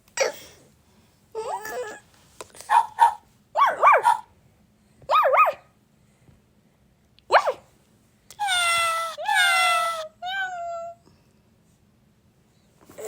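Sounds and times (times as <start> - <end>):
dog barking: 2.6 - 4.3, 5.1 - 5.7
dog long high call: 2.7 - 4.3, 5.1 - 5.7.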